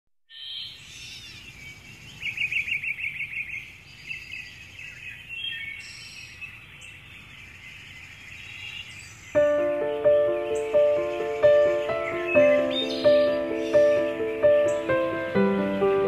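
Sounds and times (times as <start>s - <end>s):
birds chirping: 0.3s - 16.0s
bird fast trill: 9.3s - 16.0s.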